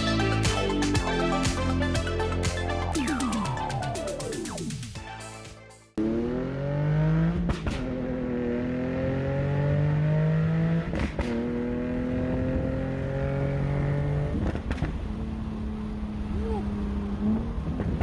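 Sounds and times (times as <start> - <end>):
car engine accelerating: 6.0 - 18.0.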